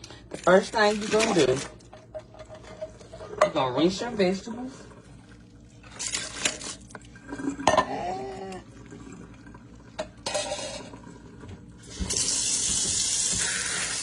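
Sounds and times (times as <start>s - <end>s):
faucet water running: 1.8s - 14.0s
pots and pans clanking: 10.0s - 10.9s.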